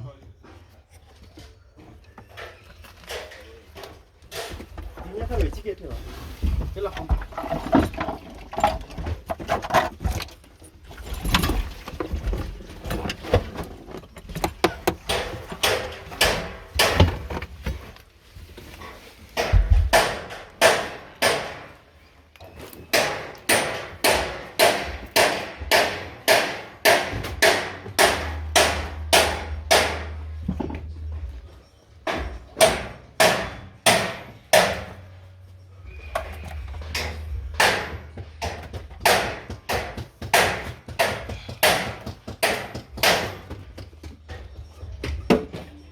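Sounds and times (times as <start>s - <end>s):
hammer blows: 22.9s - 31.3s, 35.8s - 43.6s
low hum: 27.6s - 33.0s, 34.3s - 38.6s.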